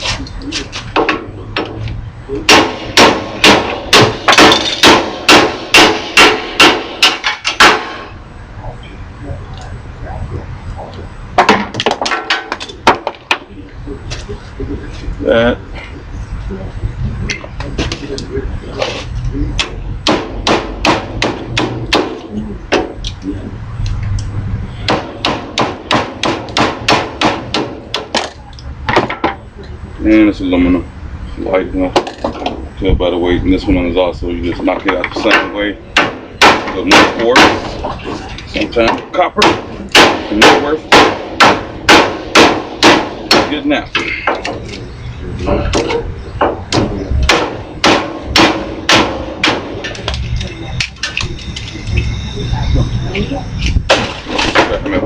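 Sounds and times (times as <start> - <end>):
hammer striking steel: 2.4 - 8.2, 19.6 - 23.0, 24.8 - 28.4, 34.9 - 37.9, 38.8 - 44.7, 45.7 - 52.4.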